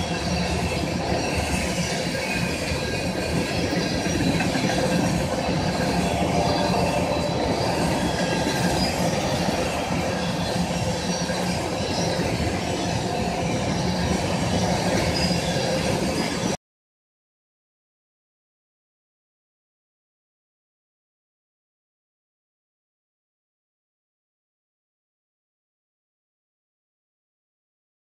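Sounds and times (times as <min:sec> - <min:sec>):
train wheels rumbling on rails: 0:00.0 - 0:16.6.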